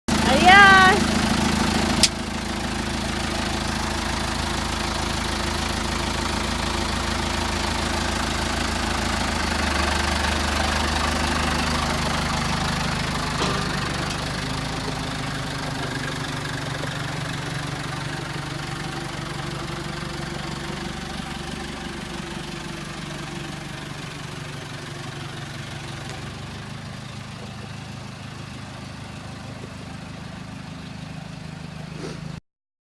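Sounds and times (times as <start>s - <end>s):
tractor engine running: 0.1s - 32.4s.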